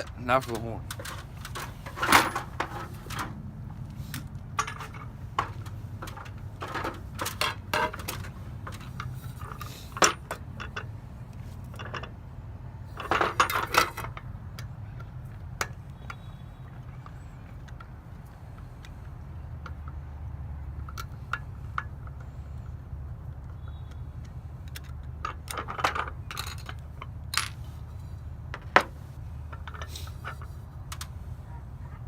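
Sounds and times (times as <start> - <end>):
metal hardware clinking: 0.0 - 3.4, 4.2 - 11.0, 12.9 - 14.7.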